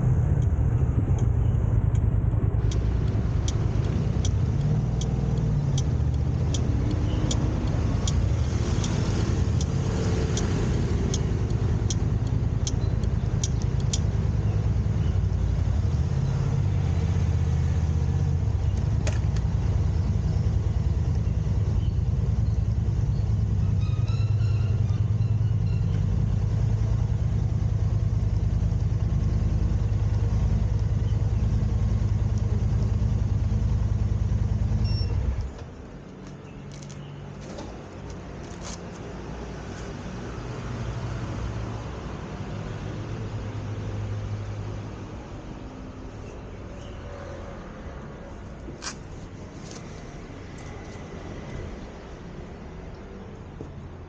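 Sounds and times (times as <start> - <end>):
regular sharp ticking: 0.0 - 15.6
car road and engine rumble: 0.0 - 54.0.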